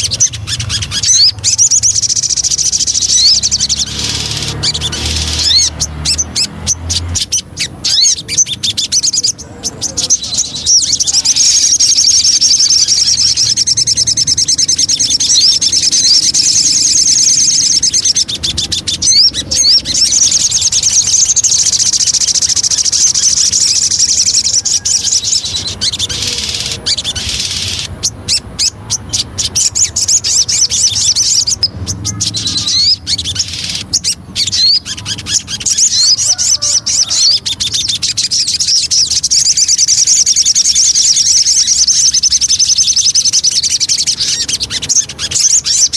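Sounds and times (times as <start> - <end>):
songbird chattering song: 0.0 - 45.9.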